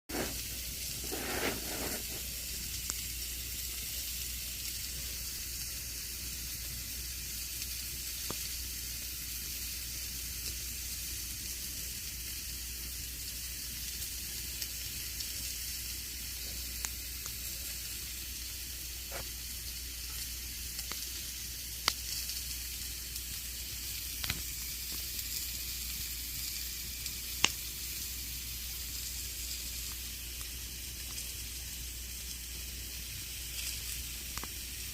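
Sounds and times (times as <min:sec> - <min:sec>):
campfire burning: 0:00.1 - 0:34.9
wood crackling and popping: 0:06.5 - 0:09.1, 0:13.2 - 0:34.9.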